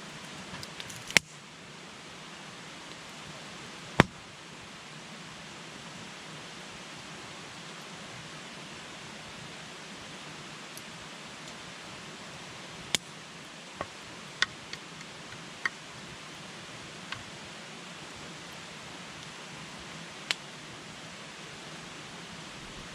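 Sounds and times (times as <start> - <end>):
campfire hissing: 0.0 - 22.9
burning wood crackling pops: 0.1 - 1.4, 4.0 - 4.2, 12.8 - 15.9, 17.0 - 17.4, 20.2 - 20.5.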